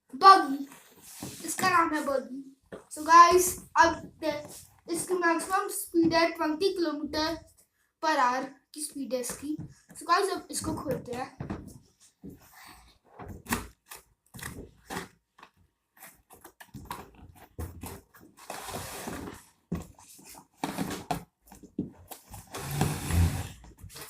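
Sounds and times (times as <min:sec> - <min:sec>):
cardboard scraping: 0:15.9 - 0:24.0.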